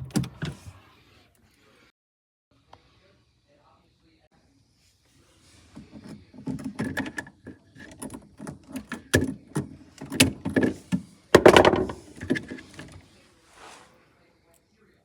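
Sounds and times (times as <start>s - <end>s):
knocks and clatters from handling: 5.8s - 13.0s.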